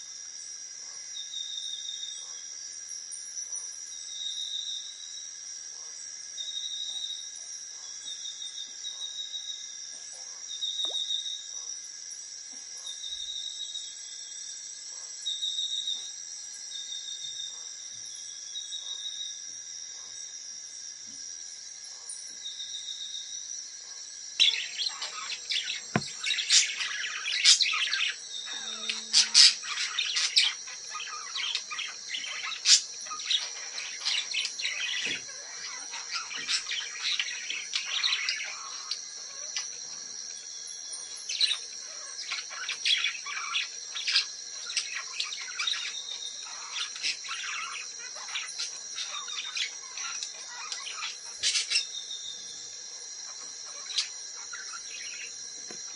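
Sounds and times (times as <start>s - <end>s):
high insect drone: 0.0s - 55.9s
parrots calling: 24.4s - 39.0s.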